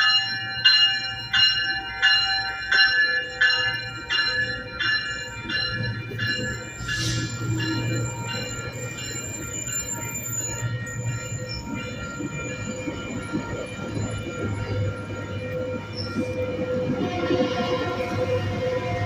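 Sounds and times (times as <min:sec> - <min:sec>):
train rumbling on rails: 0:00.0 - 0:19.0
train wheels squealing: 0:05.8 - 0:17.0.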